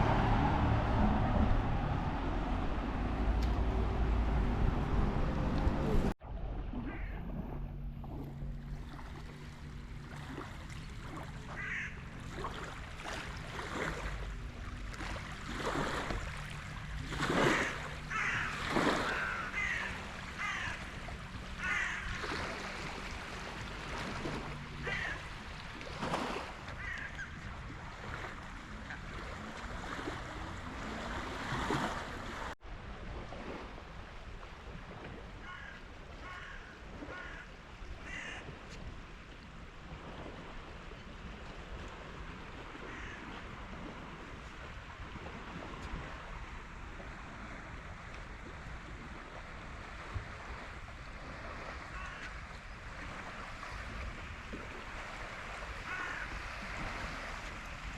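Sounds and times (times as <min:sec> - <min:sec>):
low steady hum: 0:00.0 - 0:18.7
birds calling repeatedly: 0:17.5 - 0:22.2.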